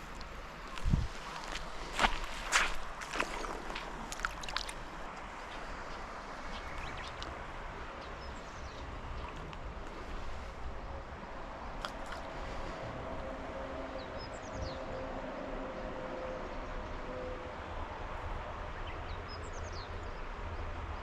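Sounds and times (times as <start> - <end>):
river water rushing: 0.0 - 13.5.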